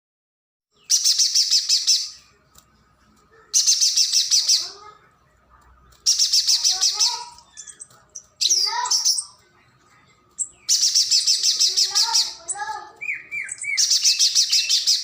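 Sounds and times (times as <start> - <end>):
bird singing rapid high notes: 0.7 - 2.3, 3.5 - 5.1, 5.8 - 9.5, 10.3 - 15.0
soft low bird chirps: 0.7 - 15.0.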